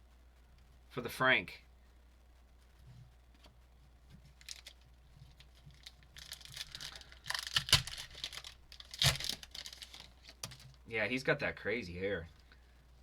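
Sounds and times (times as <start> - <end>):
cards and wrapper rustling: 4.4 - 10.8.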